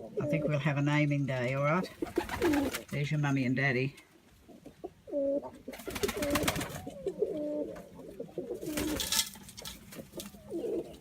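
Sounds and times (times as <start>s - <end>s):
doves cooing: 0.0s - 0.8s, 1.9s - 2.9s, 4.4s - 11.0s
rustling: 5.5s - 11.0s.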